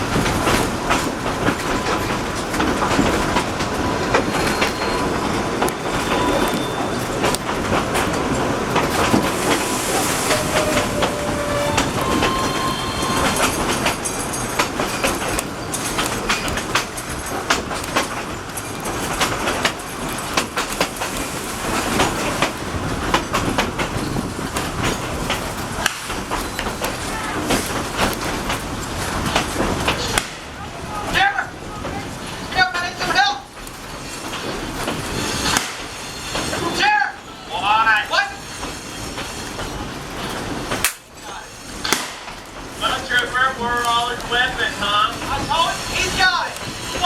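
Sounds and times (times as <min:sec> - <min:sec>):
train wheels clacking on rails: 0:00.0 - 0:47.0
wheel squeals: 0:01.6 - 0:22.6, 0:23.8 - 0:30.2.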